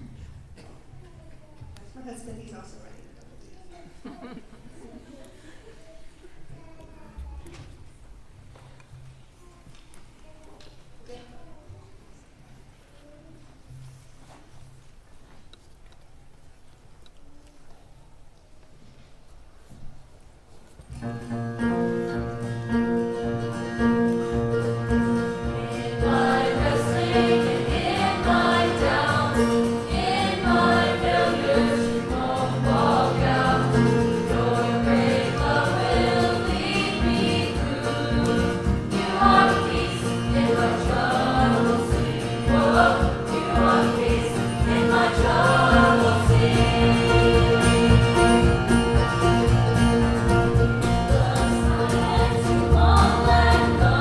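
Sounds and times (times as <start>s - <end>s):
acoustic strings playing bluegrass: 21.0s - 54.0s
children's choir singing: 21.6s - 54.0s.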